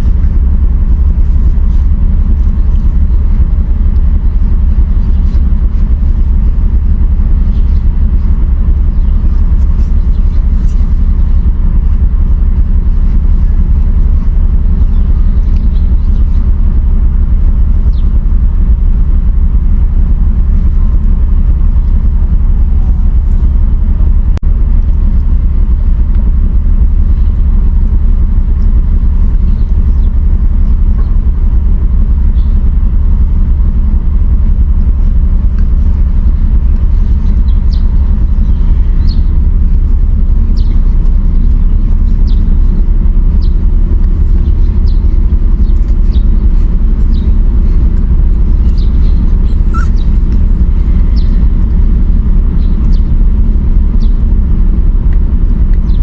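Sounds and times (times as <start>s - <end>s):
loud low rumble: 0.0s - 56.0s
faint squeaks and ticks: 48.6s - 51.5s.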